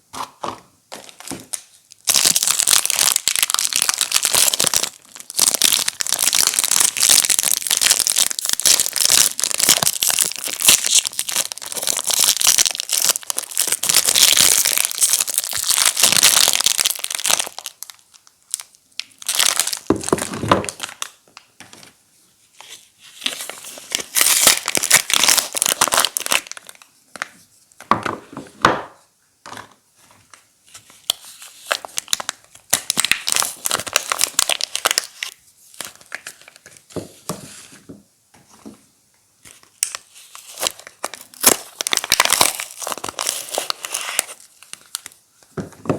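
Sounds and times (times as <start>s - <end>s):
wrappers crinkling and tearing: 1.0s - 21.2s, 22.6s - 26.9s, 30.8s - 36.8s, 39.5s - 45.2s.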